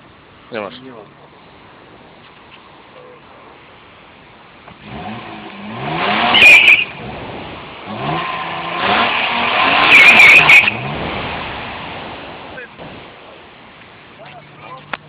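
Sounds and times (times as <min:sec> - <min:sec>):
car engine revving: 0:04.7 - 0:13.4
high squeal: 0:06.2 - 0:07.0, 0:09.6 - 0:10.8.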